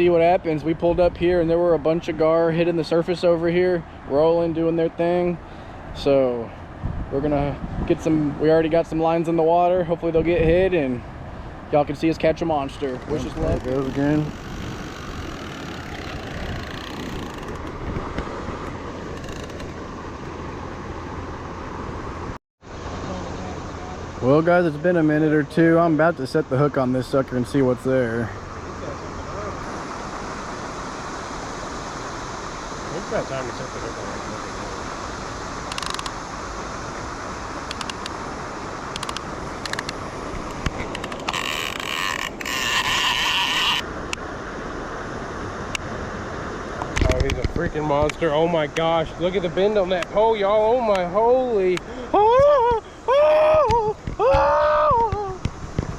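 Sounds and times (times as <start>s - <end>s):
rushing water from spillway: 0.0s - 55.9s
fishing reel buzzing: 13.2s - 17.8s, 19.1s - 19.7s, 35.7s - 36.1s, 41.0s - 43.9s
fishing reel ratcheting clicks: 35.7s - 36.1s, 41.0s - 43.8s.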